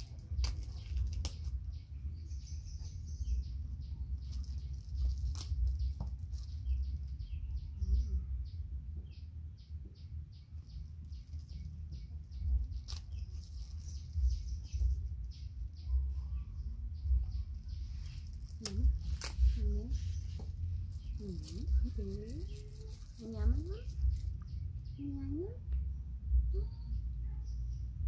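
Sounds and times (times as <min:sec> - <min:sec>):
low rumble: 0:00.0 - 0:28.0
small birds chirping: 0:00.0 - 0:28.0.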